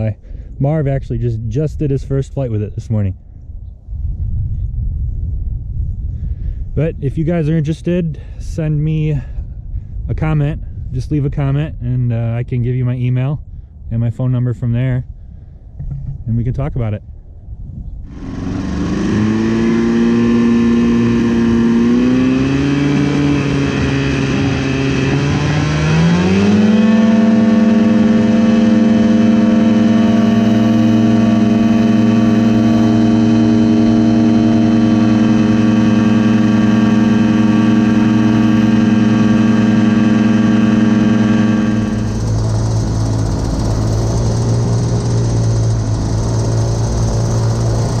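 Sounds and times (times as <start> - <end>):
two-stroke aircraft engine running: 15.8 - 16.2, 18.0 - 48.0.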